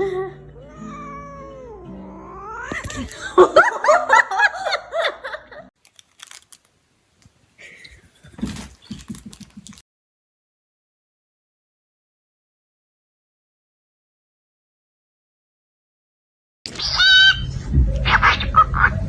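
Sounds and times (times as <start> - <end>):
cat yowling: 0.6 - 3.4.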